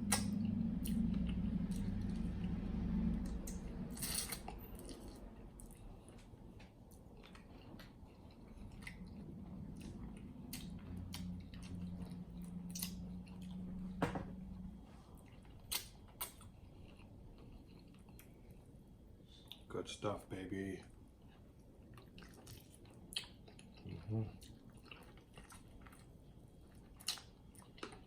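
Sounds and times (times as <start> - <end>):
low hum: 0.0 - 19.2
chewing chicken wings: 4.4 - 13.7, 15.1 - 18.8, 21.2 - 28.0.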